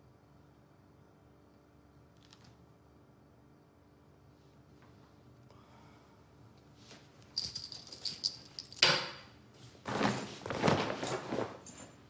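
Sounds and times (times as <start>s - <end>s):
small metal objects jingling: 7.4s - 8.9s
rustling and scraping handling noise: 9.5s - 12.0s.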